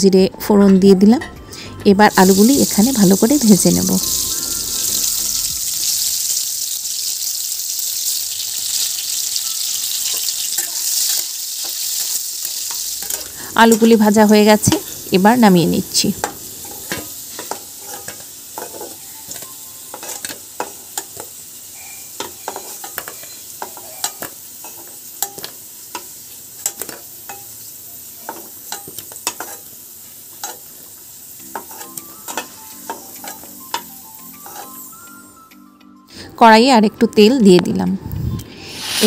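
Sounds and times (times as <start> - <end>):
oil sizzling and crackling: 2.1 - 35.4, 38.5 - 39.0
metal spatula scraping pan: 16.2 - 21.3, 22.2 - 27.5, 28.3 - 29.7, 31.5 - 34.9.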